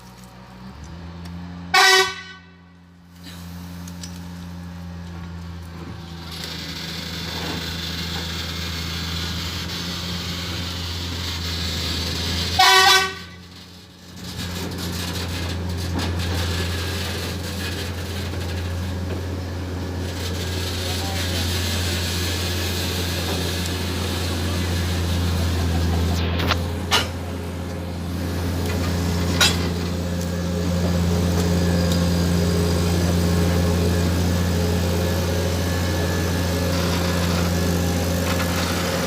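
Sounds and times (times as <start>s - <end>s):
railway diesel engine running: 0.0s - 39.0s
train horn toots: 1.7s - 2.8s, 12.5s - 13.5s.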